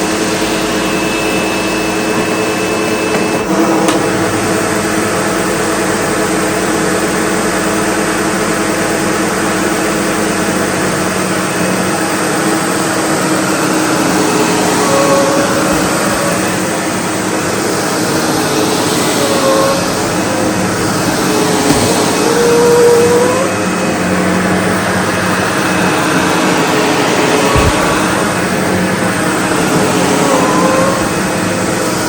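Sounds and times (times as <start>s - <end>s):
upright vacuum cleaner running: 0.0s - 32.0s
short higher tone: 19.2s - 24.5s.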